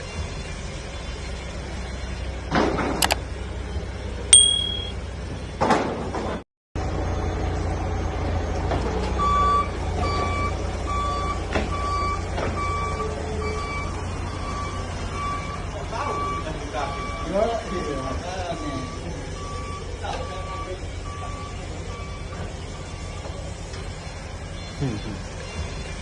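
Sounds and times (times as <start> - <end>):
brief high beep: 4.4 - 4.9
even electronic beeping: 4.4 - 4.9.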